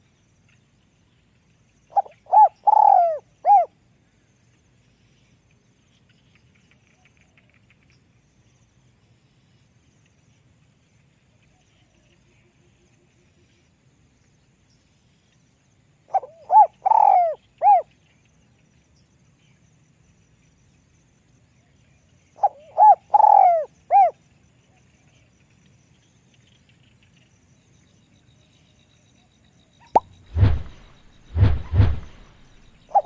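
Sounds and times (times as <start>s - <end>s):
dove cooing: 2.0s - 3.7s, 16.1s - 17.8s, 22.4s - 24.1s, 32.2s - 33.0s.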